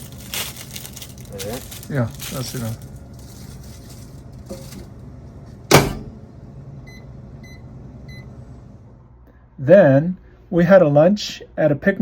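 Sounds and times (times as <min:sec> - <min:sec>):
microwave oven humming: 0:00.0 - 0:09.4.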